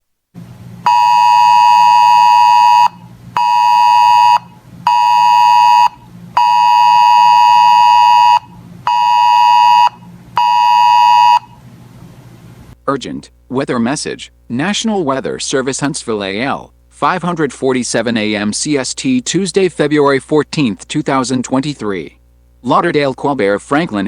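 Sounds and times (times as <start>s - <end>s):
weather alert alarm beeping: 0.8s - 11.6s.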